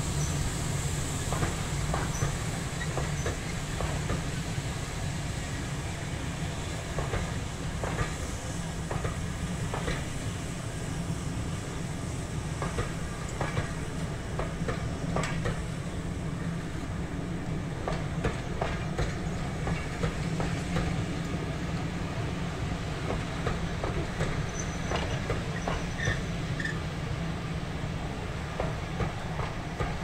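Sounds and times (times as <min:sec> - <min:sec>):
low train rumble: 0:00.0 - 0:30.0
wheels clacking over rail joints: 0:17.8 - 0:21.0.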